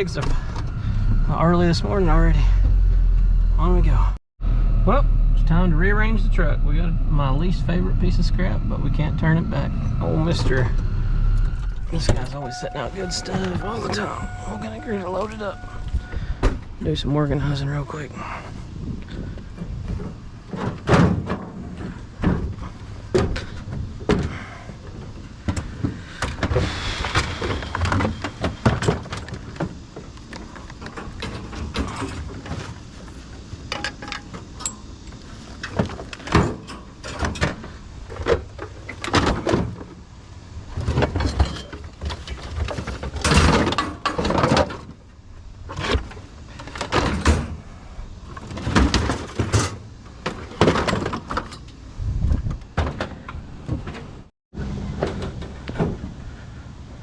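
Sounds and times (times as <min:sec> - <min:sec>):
scrap metal clanking and thudding: 0:19.2 - 0:40.0, 0:40.7 - 0:45.0, 0:45.7 - 0:51.7.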